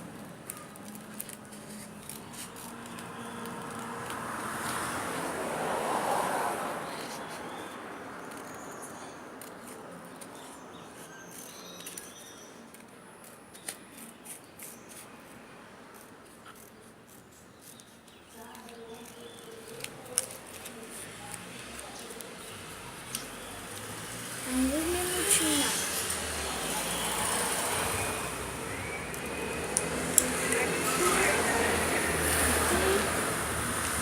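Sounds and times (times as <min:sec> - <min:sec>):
paper rustling: 0:00.2 - 0:04.0
scissors cutting paper: 0:00.4 - 0:04.2, 0:15.9 - 0:24.0.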